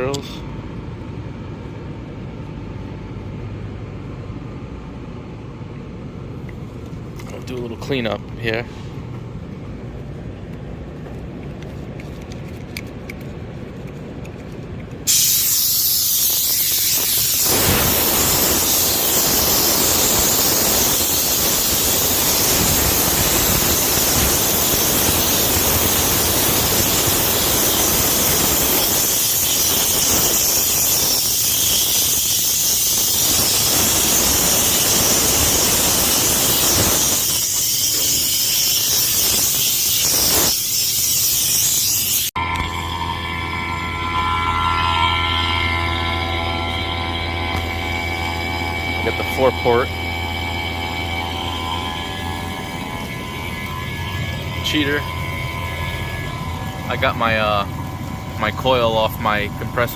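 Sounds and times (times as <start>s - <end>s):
loud gas hiss: 15.1s - 42.3s.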